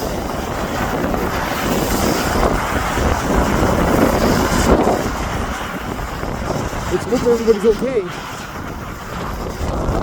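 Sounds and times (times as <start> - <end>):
low rumble: 0.0 - 10.0
wind buffeting microphone: 0.0 - 10.0.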